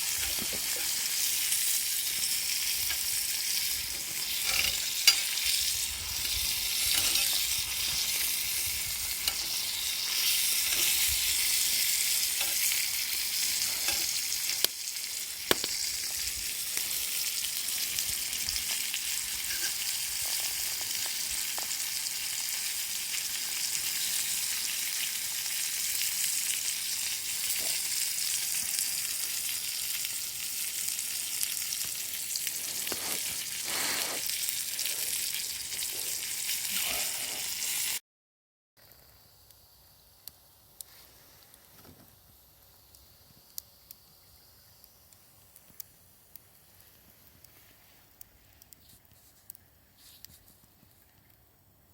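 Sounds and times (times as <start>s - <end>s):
food sizzling in a pan: 0.0s - 38.0s.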